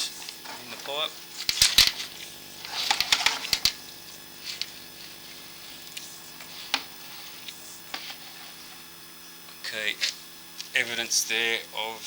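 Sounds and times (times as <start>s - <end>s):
faint steady hum: 0.0s - 12.0s
camera clicking in pipe: 1.4s - 3.8s.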